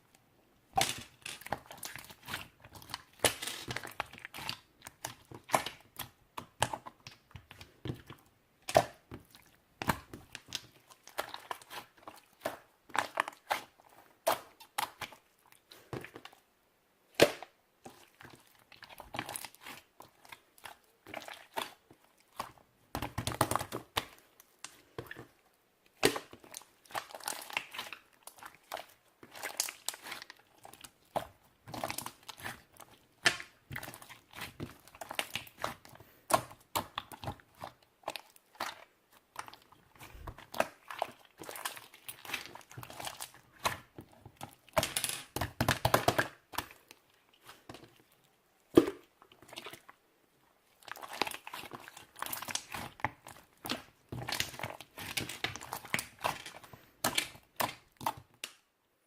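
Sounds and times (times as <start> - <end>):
crunching and crinkling: 0.8 - 5.9, 26.0 - 50.0, 50.6 - 58.6.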